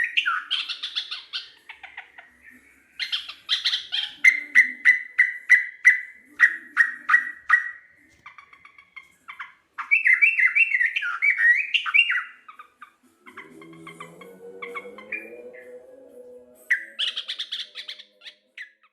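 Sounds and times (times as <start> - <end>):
bird calling: 0.0 - 18.9.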